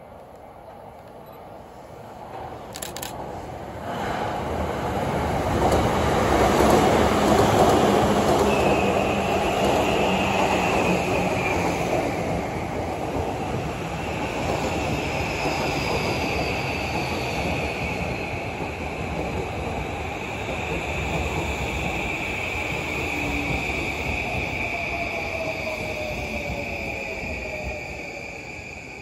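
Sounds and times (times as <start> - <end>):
train wheels rumbling: 2.2 - 29.0.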